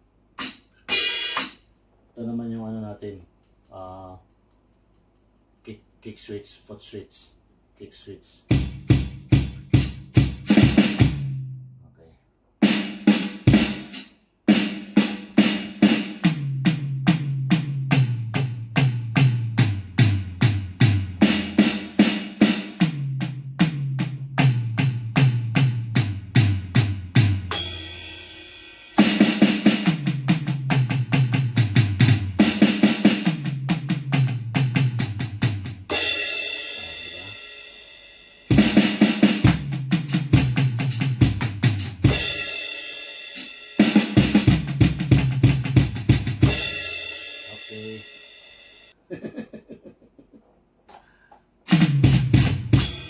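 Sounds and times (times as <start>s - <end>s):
electronic drum hits on snare and toms: 0.4s - 1.6s, 8.5s - 11.4s, 12.6s - 28.3s, 29.0s - 37.3s, 38.5s - 42.6s, 43.4s - 48.0s, 51.7s - 53.0s.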